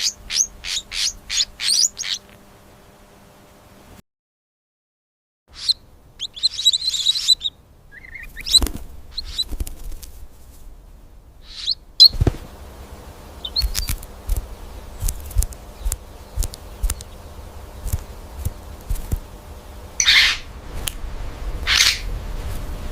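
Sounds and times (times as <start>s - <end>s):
small bird chirping: 0.0s - 2.4s, 5.5s - 10.0s, 11.4s - 12.2s, 13.2s - 20.5s, 21.6s - 22.1s.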